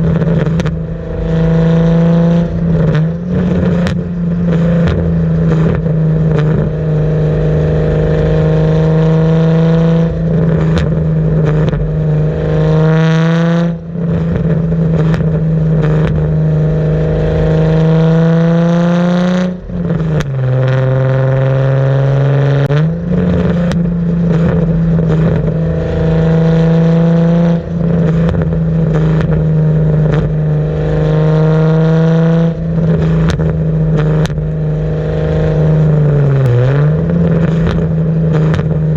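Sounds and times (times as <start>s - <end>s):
car engine accelerating through gears: 0.0s - 38.9s.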